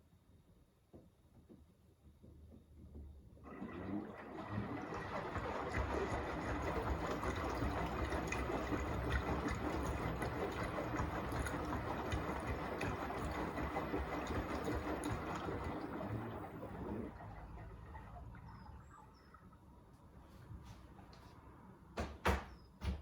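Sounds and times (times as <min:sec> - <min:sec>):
low rumble of washing machine drum: 0:01.3 - 0:20.7
washing machine water rushing: 0:03.4 - 0:20.7.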